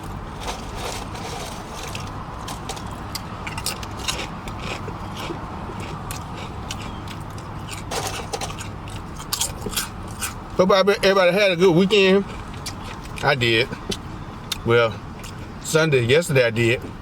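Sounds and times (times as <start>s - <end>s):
chewing and mouth sounds: 1.8s - 10.4s, 12.1s - 15.6s.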